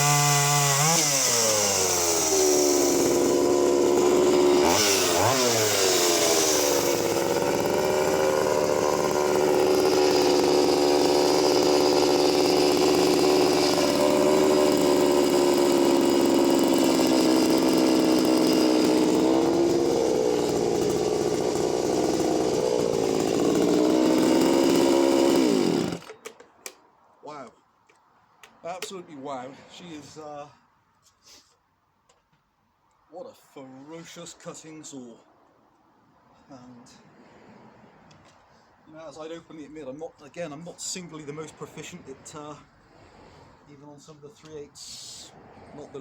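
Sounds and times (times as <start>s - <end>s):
chainsaw cutting through log: 0.0s - 26.4s.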